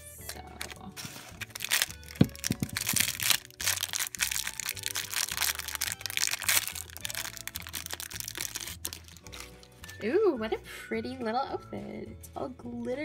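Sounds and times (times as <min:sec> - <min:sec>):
plastic wrapper crinkling: 0:00.2 - 0:10.0.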